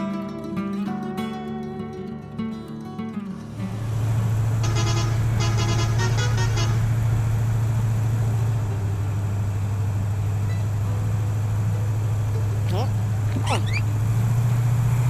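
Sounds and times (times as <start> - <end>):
toy truck horn beeps: 4.6 - 6.9.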